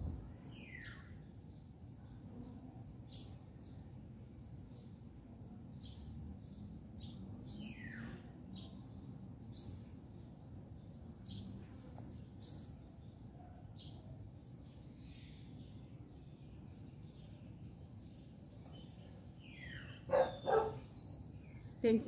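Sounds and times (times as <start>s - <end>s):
small birds chirping: 0.4s - 22.0s
sweeping bird calls: 18.6s - 21.8s.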